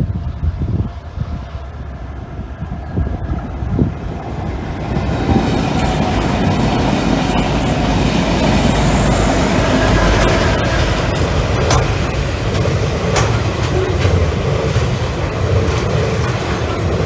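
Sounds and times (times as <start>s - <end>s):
train wheels rumbling on rails: 0.0s - 17.0s
clicks over rail joints: 8.4s - 17.0s.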